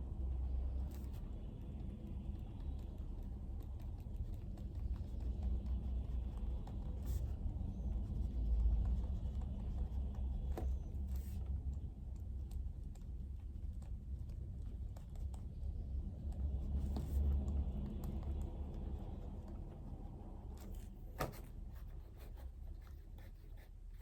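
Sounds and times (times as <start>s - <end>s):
light taps and clicks: 0.6s - 23.4s.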